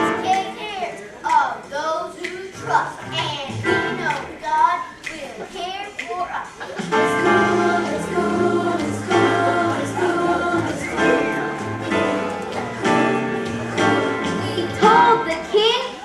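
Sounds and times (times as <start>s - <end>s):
gospel choir singing: 6.6s - 15.6s
bass line: 6.8s - 15.5s.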